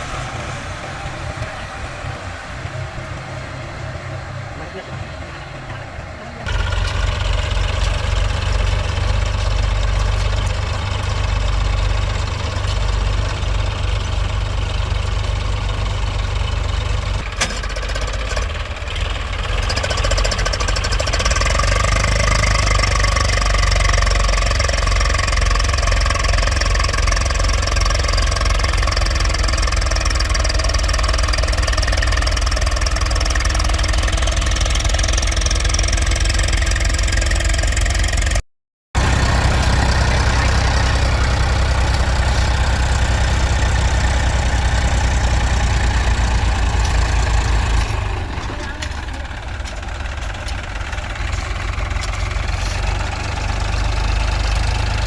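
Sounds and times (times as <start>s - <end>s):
tractor diesel engine knocking: 0.0s - 38.4s, 39.0s - 55.0s.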